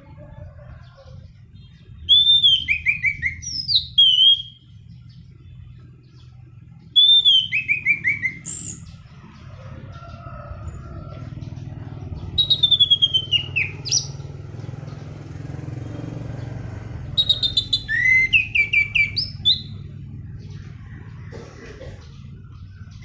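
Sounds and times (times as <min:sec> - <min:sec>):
thrush singing whistled notes: 0:01.4 - 0:05.4, 0:06.7 - 0:09.2, 0:11.2 - 0:20.6.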